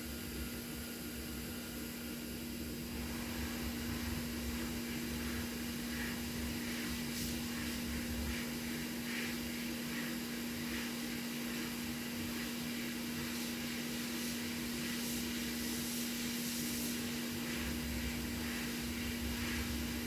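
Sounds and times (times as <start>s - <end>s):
heat gun blowing air: 4.7s - 20.0s.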